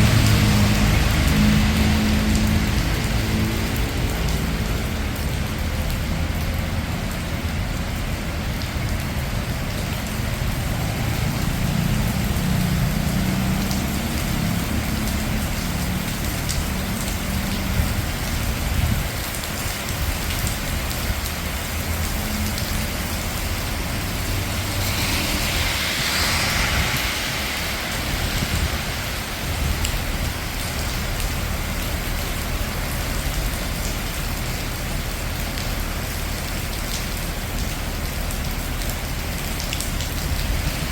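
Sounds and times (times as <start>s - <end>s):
low rumble of vehicles: 0.0s - 40.9s
rain falling on street: 0.0s - 40.9s
car swishing past on wet road: 10.5s - 17.4s, 21.8s - 30.8s.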